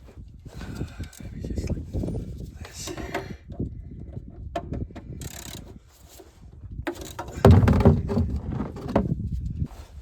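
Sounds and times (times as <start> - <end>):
hand tools knocking and scraping: 6.9 - 9.1
low thumps: 7.3 - 9.0.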